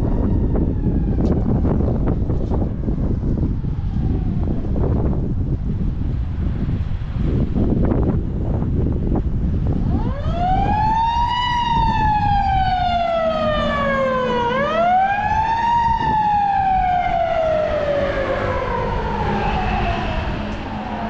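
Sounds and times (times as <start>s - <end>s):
emergency vehicle siren wailing: 0.0s - 5.2s, 9.7s - 21.0s
wind and road noise rumble: 0.0s - 21.0s.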